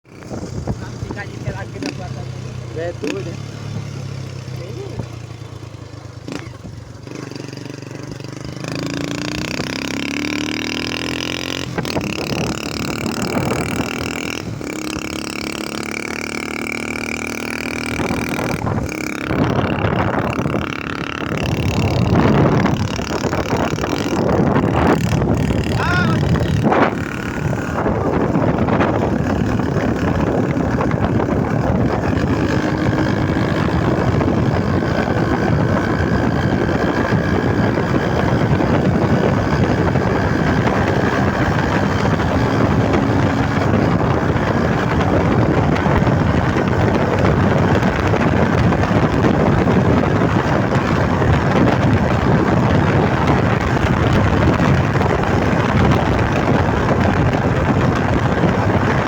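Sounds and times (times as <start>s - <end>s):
loud vehicle exhaust note: 5.2s - 59.0s.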